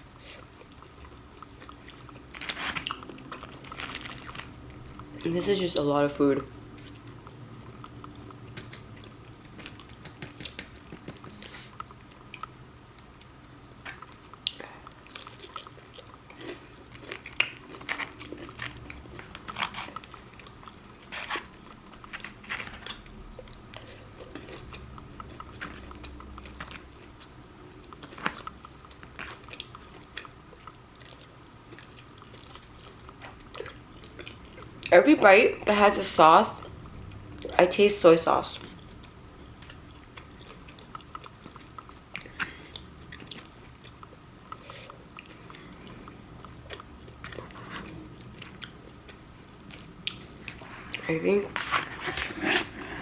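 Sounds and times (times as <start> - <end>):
person chewing: 0.1 - 35.3, 38.6 - 53.0
crisp crunches: 2.3 - 4.5.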